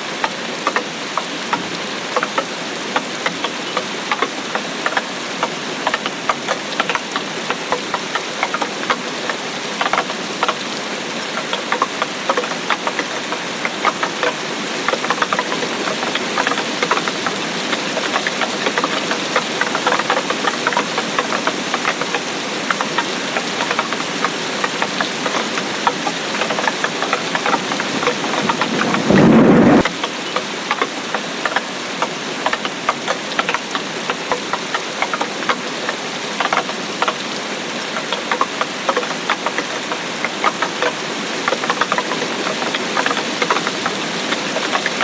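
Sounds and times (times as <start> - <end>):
rain patter: 0.0 - 45.0
loud low burst: 27.9 - 29.8.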